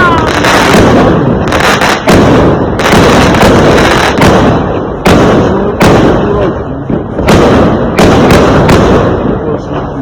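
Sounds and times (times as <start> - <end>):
fireworks crackling: 0.0 - 10.0
sharp fireworks bangs: 0.0 - 10.0.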